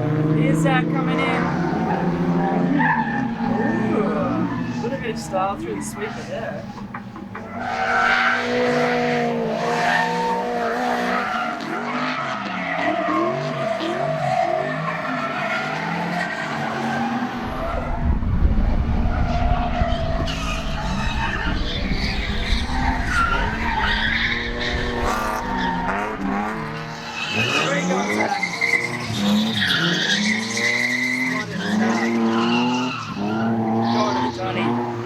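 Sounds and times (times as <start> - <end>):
car engine revving: 0.0 - 35.0
heavy low rumble: 17.4 - 27.1
tyres squealing: 20.2 - 35.0.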